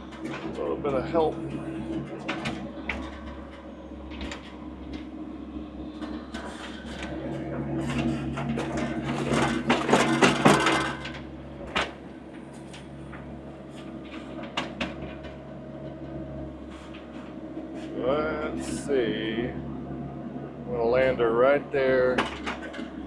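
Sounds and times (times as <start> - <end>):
diesel engine running: 0.0 - 23.0
knocks and clanks: 7.8 - 12.0.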